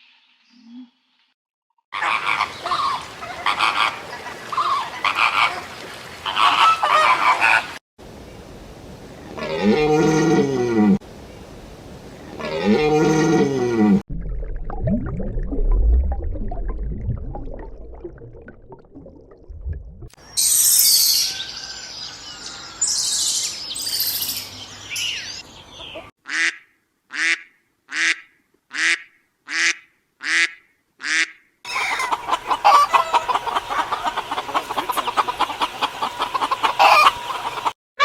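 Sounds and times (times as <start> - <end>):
high bird chirps: 20.2 - 26.1
bird honking calls: 28.8 - 37.7
chorus of rapid bird calls: 31.7 - 37.7.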